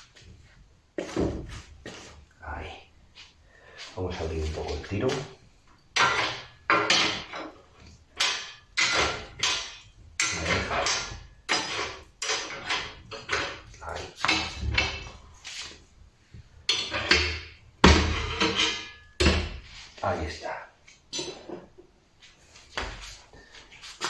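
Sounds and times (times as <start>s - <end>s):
metallic clanks and scrapes: 3.7s - 15.9s, 16.6s - 20.0s, 21.1s - 21.8s.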